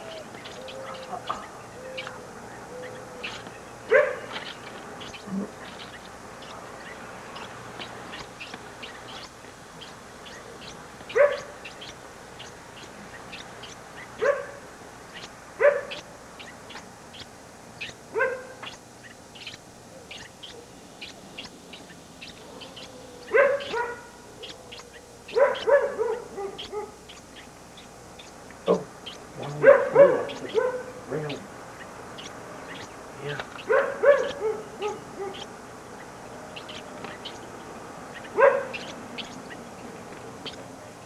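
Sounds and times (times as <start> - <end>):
dog barking: 3.9 - 4.4, 11.1 - 11.6, 14.2 - 14.6, 15.6 - 16.0, 18.1 - 18.6, 23.3 - 24.6, 25.3 - 27.0, 29.5 - 31.4, 33.6 - 35.5, 38.4 - 38.9.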